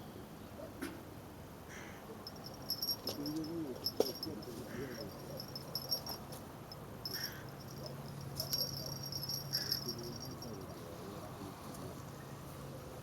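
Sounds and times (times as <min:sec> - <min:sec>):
steady low hum: 0:02.2 - 0:13.0.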